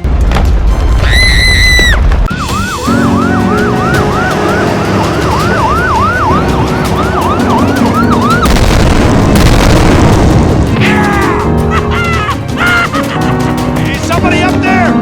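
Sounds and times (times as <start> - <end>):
siren sweeping: 2.3 - 8.7.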